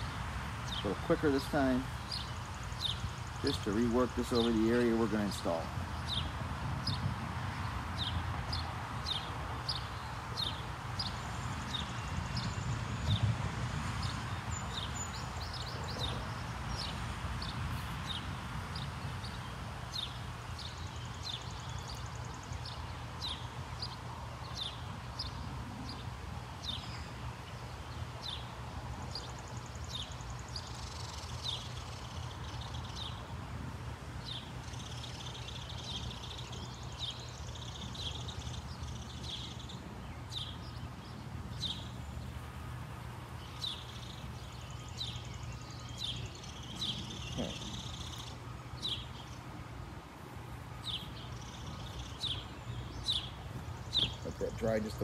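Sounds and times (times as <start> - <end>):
bird sharp chirps: 50.8 - 55.0.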